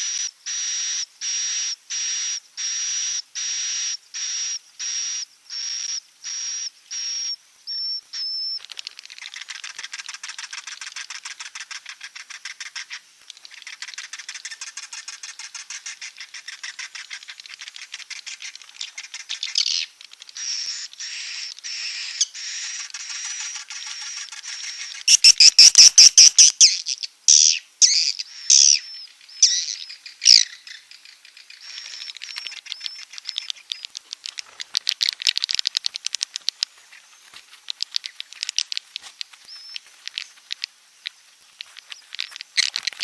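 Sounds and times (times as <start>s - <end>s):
swiftlet twittering chatter: 8.6s - 43.0s
swiftlet chirps with high whistle: 20.4s - 26.6s.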